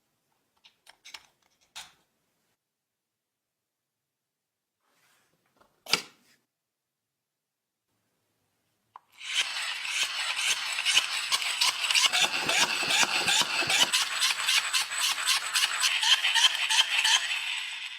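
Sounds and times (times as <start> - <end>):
small hard parts rattling: 9.4 - 17.6.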